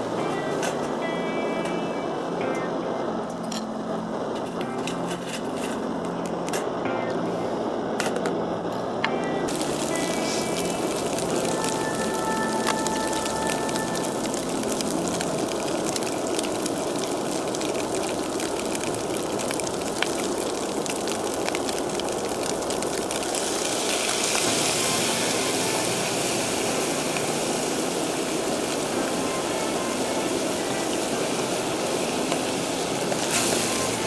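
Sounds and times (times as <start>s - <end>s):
camp stove roaring: 0.0s - 34.0s
high hiss: 0.0s - 34.0s.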